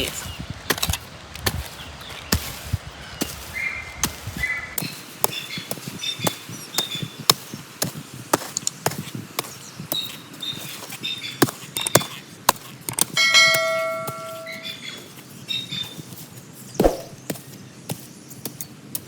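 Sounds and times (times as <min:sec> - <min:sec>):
metal tool chopping soil: 0:00.0 - 0:14.8, 0:16.8 - 0:17.3
metal blade ringing: 0:13.2 - 0:14.8.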